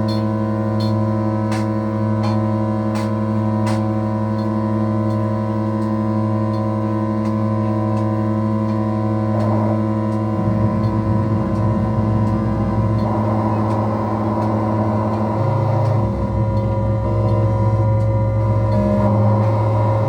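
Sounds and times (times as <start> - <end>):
synthesizer drone: 0.0 - 20.0
rough noisy synth layer: 6.3 - 20.0.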